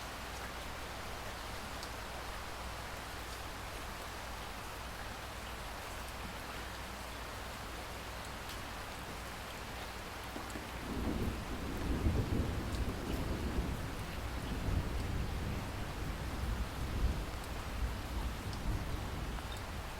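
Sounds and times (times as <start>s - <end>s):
steady rain: 0.0s - 19.9s
low rumble of thunder: 10.6s - 19.9s.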